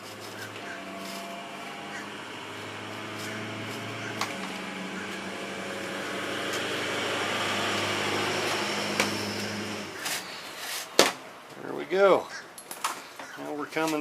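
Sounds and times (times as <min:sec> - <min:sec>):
low machine hum: 0:00.0 - 0:10.6
rushing noise: 0:00.0 - 0:10.7.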